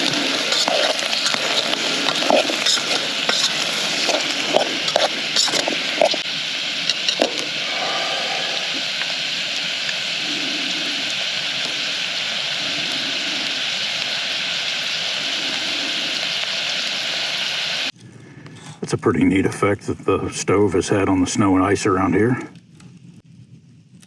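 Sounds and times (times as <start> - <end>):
sausage sizzling in a pan: 0.0 - 18.0.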